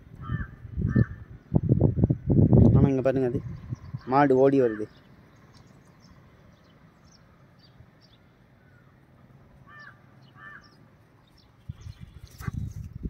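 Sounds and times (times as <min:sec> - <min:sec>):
short bird calls: 0:09.6 - 0:12.7.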